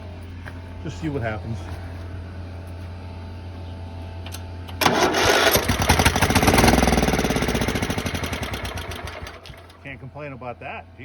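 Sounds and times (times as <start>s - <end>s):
lawn tractor engine running: 3.4s - 10.0s
starter cranking engine: 4.7s - 9.8s.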